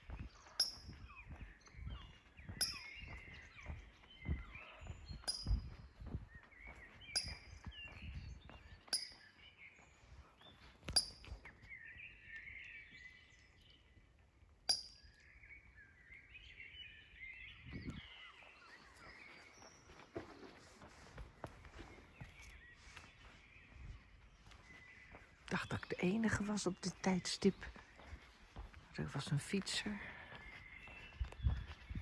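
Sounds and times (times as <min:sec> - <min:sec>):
low thumps like footsteps: 0:00.0 - 0:08.9, 0:27.6 - 0:28.9, 0:30.4 - 0:32.0
birds twittering song: 0:00.0 - 0:32.0.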